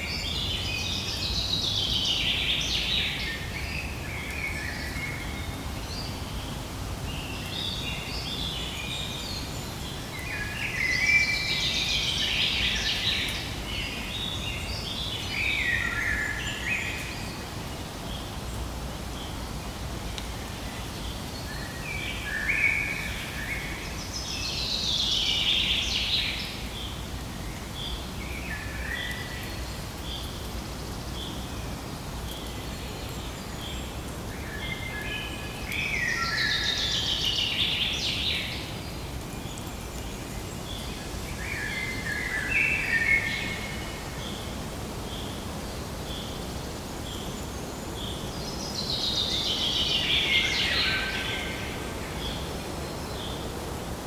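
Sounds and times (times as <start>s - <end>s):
low outdoor background hiss: 0.0s - 54.0s
bird singing: 46.1s - 53.5s.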